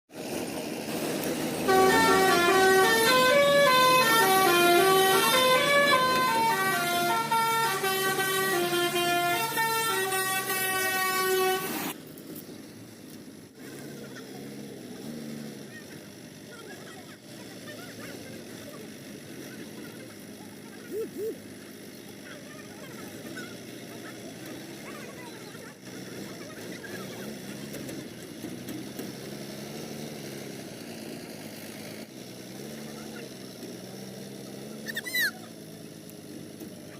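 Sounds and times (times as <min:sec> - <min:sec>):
truck engine running: 0:00.1 - 0:36.9
truck musical horn tune: 0:01.5 - 0:12.0.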